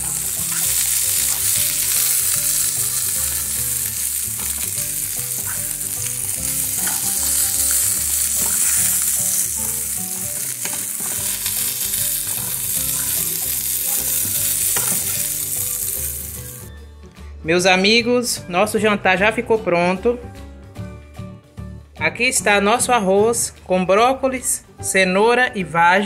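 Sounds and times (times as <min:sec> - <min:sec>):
onion sizzling in a frying pan: 0:00.0 - 0:16.7.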